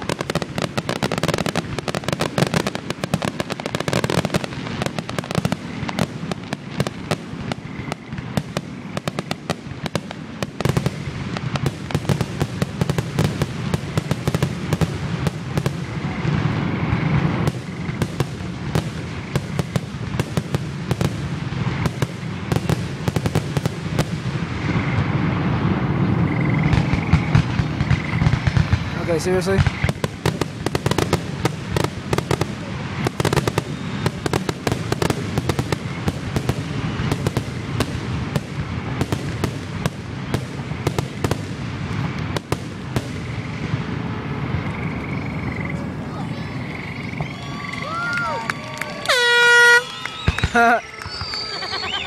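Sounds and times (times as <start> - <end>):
fireworks bursting with bangs and crackles: 0.0 - 52.0.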